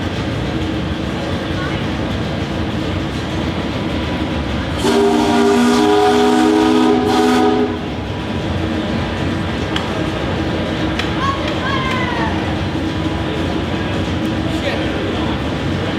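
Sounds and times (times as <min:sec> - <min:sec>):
machinery rumbling: 0:00.0 - 0:15.9
steam whistle chord: 0:04.8 - 0:07.8.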